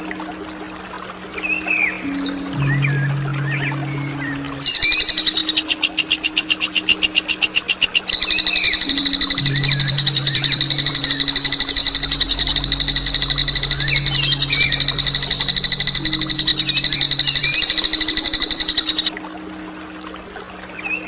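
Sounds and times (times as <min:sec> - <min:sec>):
other birds chirping: 0:02.1 - 0:19.1
songbird rolling trill: 0:04.6 - 0:19.1.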